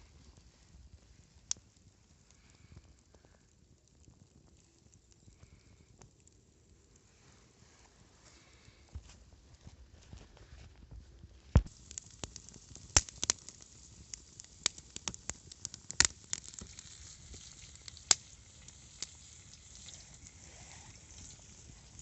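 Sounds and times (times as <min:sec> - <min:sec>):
campfire crackling pops: 0:00.9 - 0:07.0, 0:11.5 - 0:22.0
food sizzling in a pan: 0:11.7 - 0:22.0.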